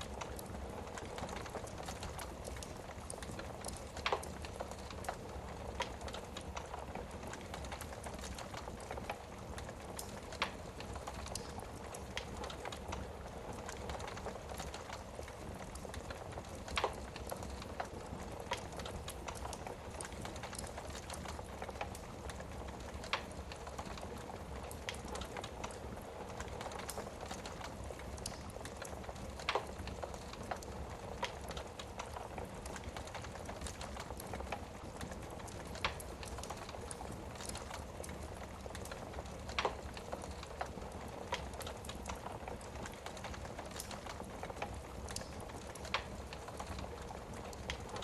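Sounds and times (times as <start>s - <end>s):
sharp pops from burning logs: 0.0s - 6.7s, 15.6s - 24.0s, 26.4s - 46.8s
wood fire crackling: 0.0s - 48.0s.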